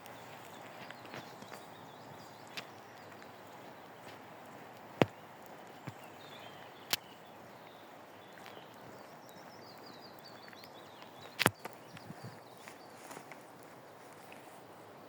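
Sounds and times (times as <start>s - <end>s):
faint high bird chirps: 5.0s - 13.2s.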